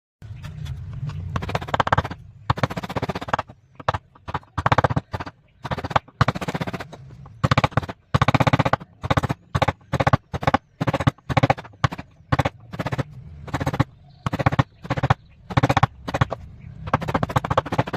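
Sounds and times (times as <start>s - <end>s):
hand tool rasping wood: 1.4s - 17.9s.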